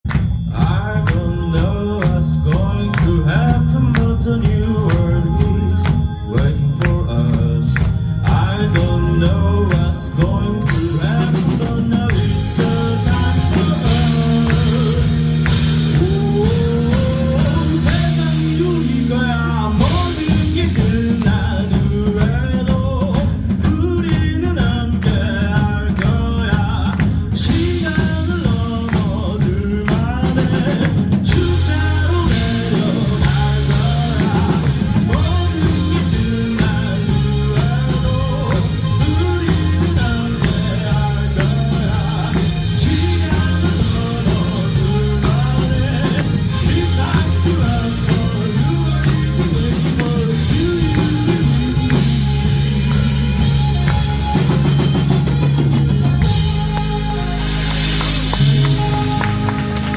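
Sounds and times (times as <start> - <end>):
bass line: 0.0 - 59.9
drums: 0.0 - 59.9
rock band playing live: 0.0 - 59.9.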